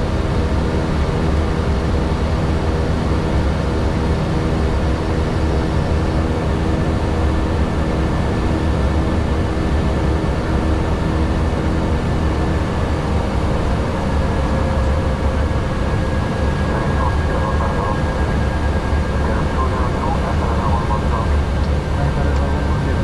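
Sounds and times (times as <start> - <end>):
low rumble of engines and airflow: 0.0 - 23.0
steady hums: 11.9 - 23.0.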